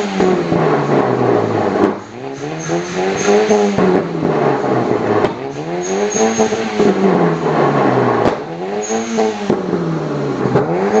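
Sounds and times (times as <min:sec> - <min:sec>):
car engine revving: 0:00.0 - 0:11.0
exhaust cracks: 0:00.0 - 0:11.0.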